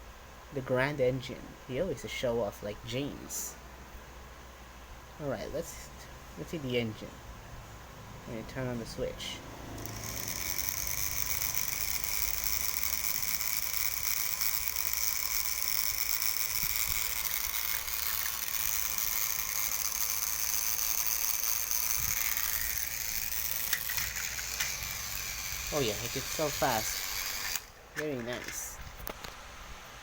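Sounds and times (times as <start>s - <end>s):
toy electric motor whirring: 9.7s - 28.8s.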